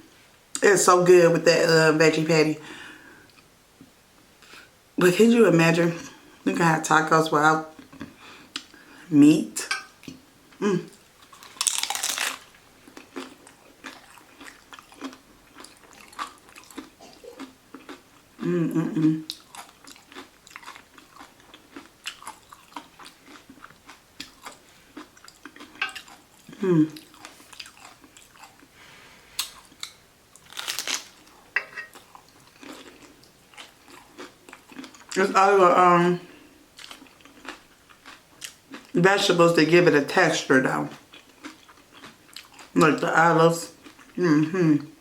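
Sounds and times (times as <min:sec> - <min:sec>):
chewing with wet crunches: 0:11.2 - 0:18.5, 0:19.2 - 0:28.7, 0:29.4 - 0:35.4, 0:36.7 - 0:39.0, 0:40.6 - 0:42.9.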